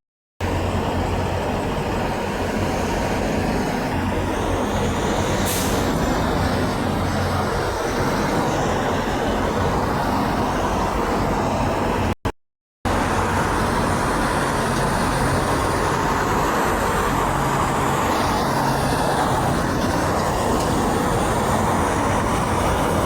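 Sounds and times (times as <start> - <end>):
diesel truck engine rumbling: 0.4 - 12.2, 12.9 - 23.0
short hiss: 5.5 - 5.9.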